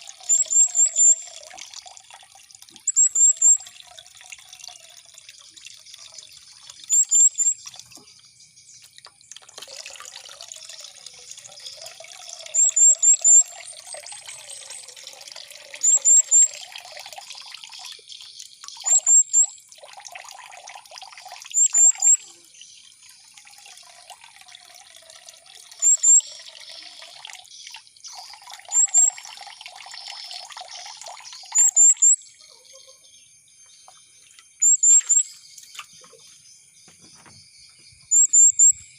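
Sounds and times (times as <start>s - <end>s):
water trickling: 0.0s - 38.9s
bird high chirps: 0.3s - 1.4s, 2.8s - 3.7s, 6.4s - 8.9s, 12.5s - 15.0s, 15.8s - 16.6s, 17.4s - 19.5s, 21.5s - 22.4s, 25.8s - 26.9s, 28.1s - 29.2s, 30.2s - 33.1s, 34.6s - 38.9s.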